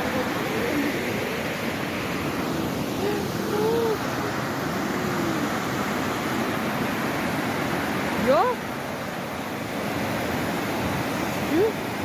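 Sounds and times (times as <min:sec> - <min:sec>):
water rushing over rapids: 0:00.0 - 0:12.0.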